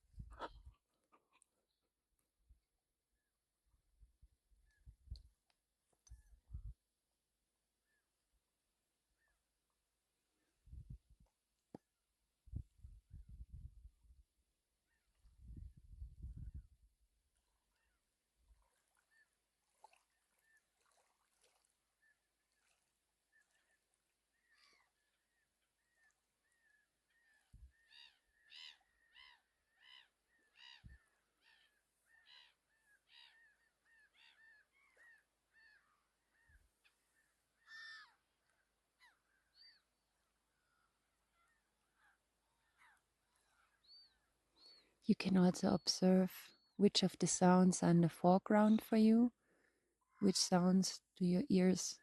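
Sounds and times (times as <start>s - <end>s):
faint distant birds calling: 23.3s - 45.0s.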